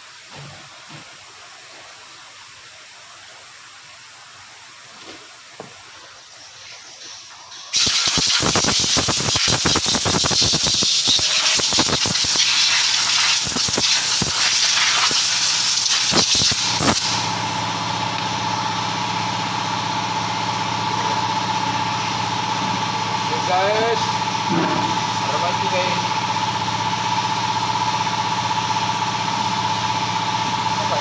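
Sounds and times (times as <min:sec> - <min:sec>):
loud hissing rush with rattles: 0:03.7 - 0:17.6, 0:23.0 - 0:26.4
engine idling hum: 0:17.0 - 0:31.0.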